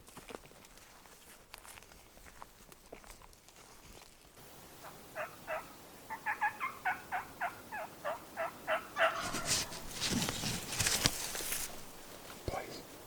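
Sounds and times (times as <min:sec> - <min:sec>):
turkey yelps on a mouth call: 0:04.8 - 0:09.5.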